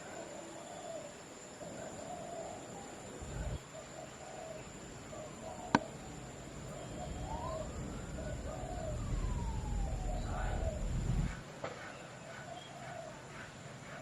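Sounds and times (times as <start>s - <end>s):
faint animal calls: 0.1s - 11.4s
heavy rain: 4.9s - 11.4s
steady high tone: 6.4s - 11.4s
gliding pitch tone: 6.5s - 11.4s.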